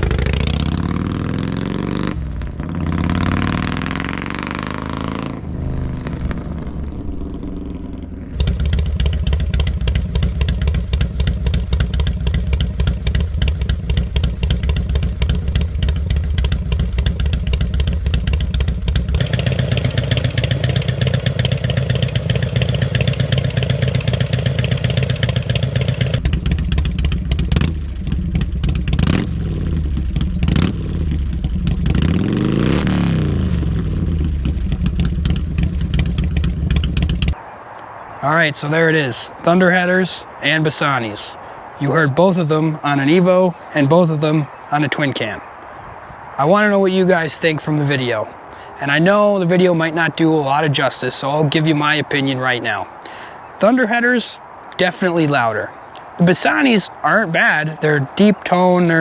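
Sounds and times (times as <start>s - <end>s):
motorcycle engine pulsing idle: 0.0s - 37.4s
motorcycle engine revving: 0.0s - 37.4s.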